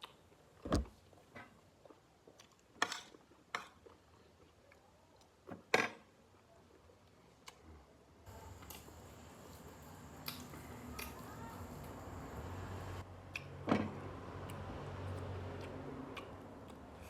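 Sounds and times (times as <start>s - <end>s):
wet chewing with clicks: 0.0s - 5.4s, 8.4s - 12.0s, 13.2s - 13.6s, 14.4s - 17.0s.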